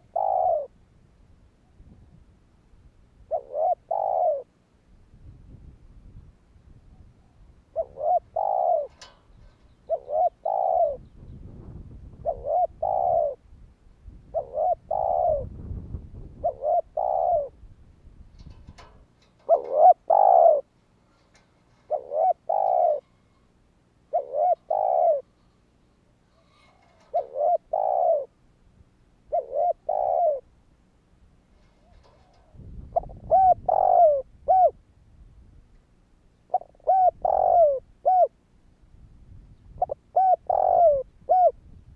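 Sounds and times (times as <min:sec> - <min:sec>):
dove cooing: 0:00.0 - 0:00.8, 0:03.3 - 0:04.5, 0:06.9 - 0:13.4, 0:14.2 - 0:17.6, 0:18.4 - 0:23.3, 0:24.1 - 0:25.4, 0:26.3 - 0:28.4, 0:29.2 - 0:30.5, 0:31.6 - 0:34.8, 0:36.5 - 0:38.4, 0:39.6 - 0:41.8.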